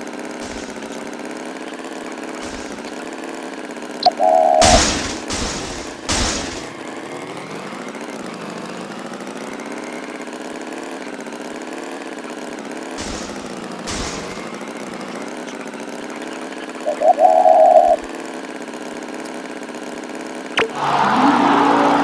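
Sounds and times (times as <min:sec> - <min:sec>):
tractor engine idling: 0:00.0 - 0:08.6.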